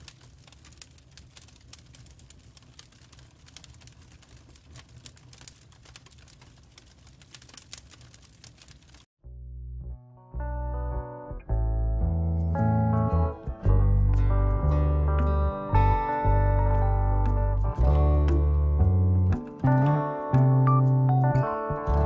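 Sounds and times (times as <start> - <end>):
crackling clicks: 0.0 - 9.1
plucked guitar music: 9.8 - 22.0.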